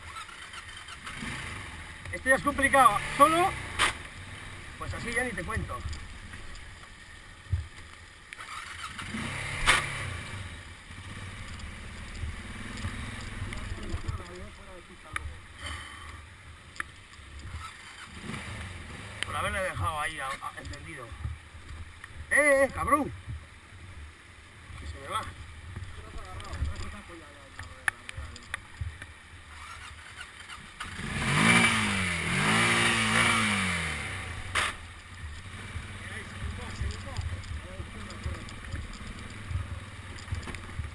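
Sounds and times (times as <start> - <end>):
small off-road engine revving: 0.0 - 6.0, 8.3 - 14.4, 17.4 - 19.8, 29.4 - 40.9.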